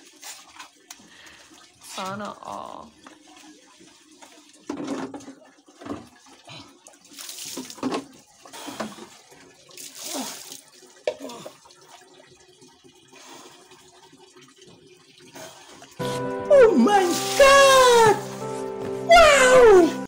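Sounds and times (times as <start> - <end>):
plastic dipper scooping water: 3.0 - 13.1
water splashing on concrete floor: 6.9 - 12.2, 17.0 - 18.4.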